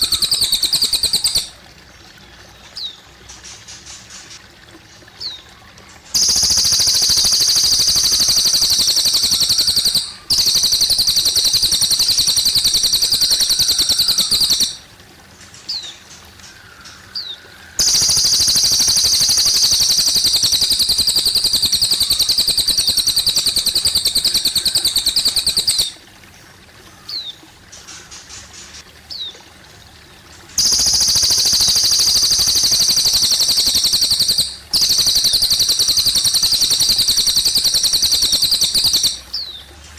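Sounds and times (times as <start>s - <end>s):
songbird high trills: 0.0s - 1.6s, 6.2s - 14.9s, 16.7s - 26.1s, 30.6s - 39.6s
faint trickling water: 0.0s - 39.9s.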